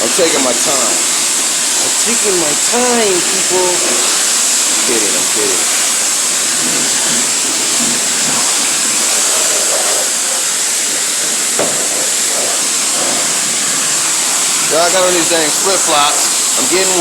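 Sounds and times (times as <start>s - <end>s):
pressure washer spraying water: 0.0s - 17.0s.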